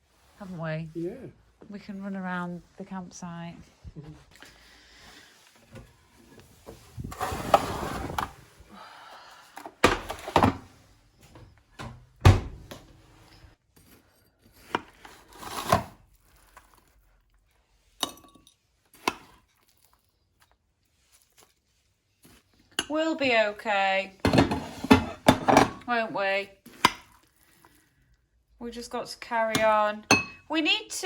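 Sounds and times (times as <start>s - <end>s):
crockery scraping: 6.1s - 8.6s, 24.2s - 26.1s
dishes and spoons clinking: 18.0s - 18.6s, 29.6s - 30.5s.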